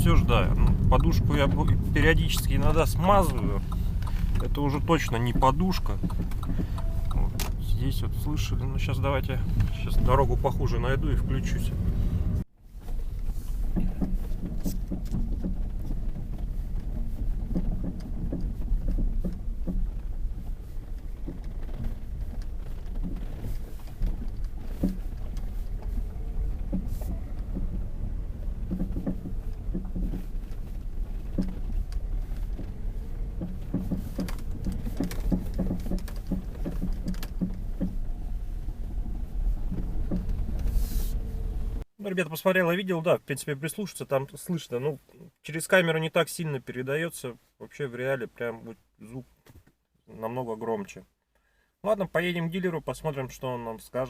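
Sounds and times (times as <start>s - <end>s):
suspension knocks and rattles: 0.0s - 41.9s
road and engine rumble: 0.0s - 46.8s.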